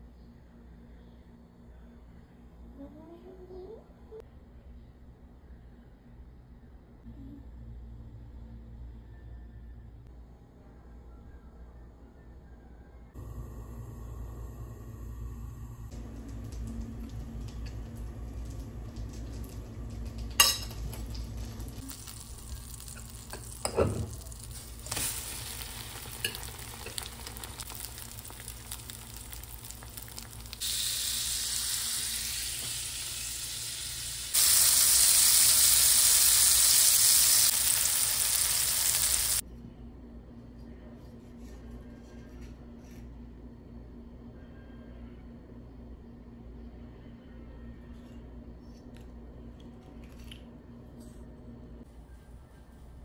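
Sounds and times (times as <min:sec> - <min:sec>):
french toast sizzling in a pan: 0:19.4 - 0:39.4.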